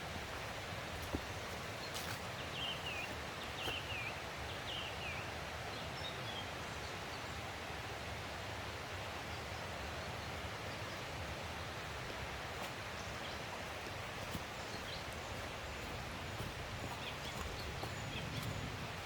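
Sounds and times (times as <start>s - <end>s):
songbird chirping: 0.0s - 7.4s, 9.2s - 19.0s
stream rushing: 0.0s - 19.0s.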